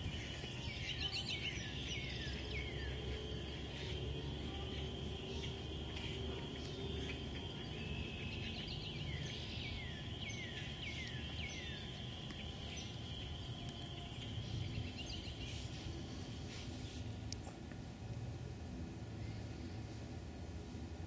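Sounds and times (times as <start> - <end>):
high-pitched background chorus: 0.0 - 16.4
bird calling slurred notes: 0.0 - 17.5.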